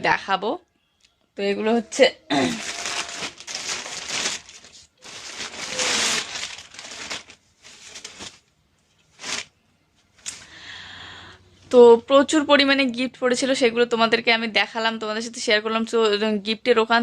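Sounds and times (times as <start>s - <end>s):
gift wrapping crinkling: 2.3s - 8.5s, 9.1s - 9.5s.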